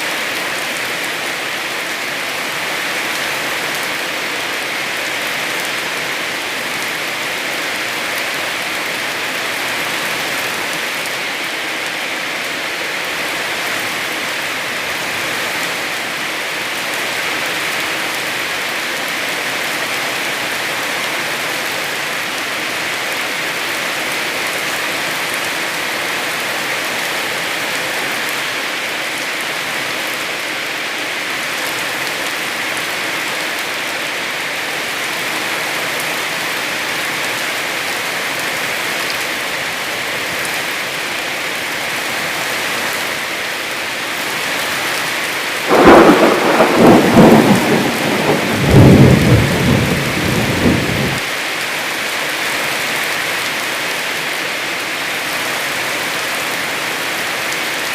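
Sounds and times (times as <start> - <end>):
heavy rain: 0.0 - 57.9
thunder rumble: 45.7 - 51.2.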